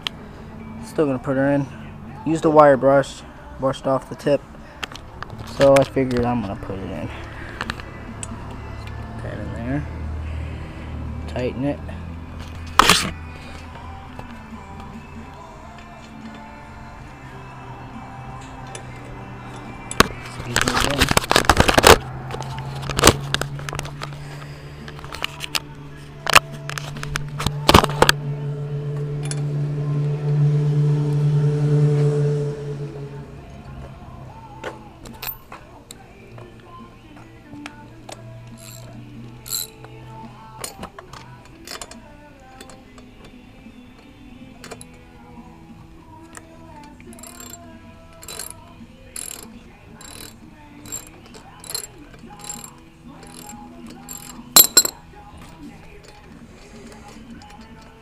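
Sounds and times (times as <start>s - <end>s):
hand tools clicking and knocking: 38.1s - 39.9s, 40.6s - 43.4s, 47.1s - 48.6s, 49.2s - 55.0s.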